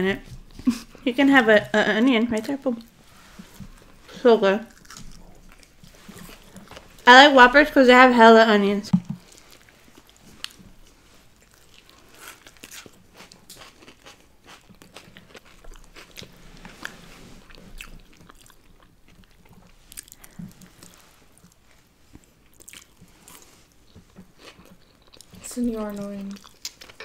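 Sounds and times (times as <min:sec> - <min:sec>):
people chewing crunchy food: 0:02.1 - 0:07.1, 0:09.2 - 0:27.0.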